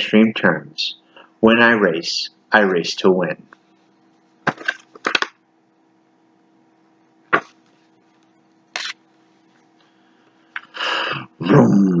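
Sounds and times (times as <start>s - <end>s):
faint steady hum: 0.0s - 12.0s
book pages rustling: 8.8s - 9.0s.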